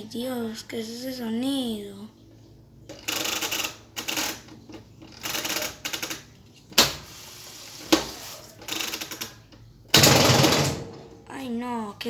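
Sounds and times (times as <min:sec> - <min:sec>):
washing machine clattering rattle: 0:07.9 - 0:11.3.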